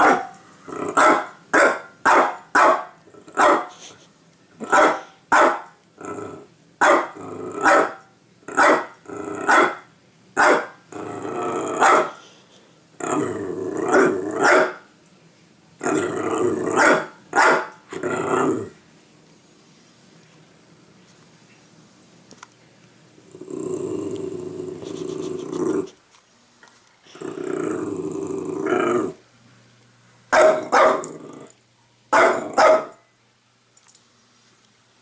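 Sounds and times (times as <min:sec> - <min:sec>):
dog barking: 0:00.0 - 0:00.3, 0:00.9 - 0:03.8, 0:04.6 - 0:05.7, 0:06.8 - 0:08.9, 0:09.5 - 0:09.8, 0:10.4 - 0:10.8, 0:11.8 - 0:12.2, 0:13.9 - 0:14.8, 0:16.8 - 0:17.8, 0:30.3 - 0:31.1, 0:32.1 - 0:33.0
dog growling barks: 0:00.0 - 0:03.8, 0:04.6 - 0:09.8, 0:10.4 - 0:12.2, 0:13.0 - 0:14.8, 0:15.8 - 0:18.8, 0:27.1 - 0:29.2, 0:30.3 - 0:33.0.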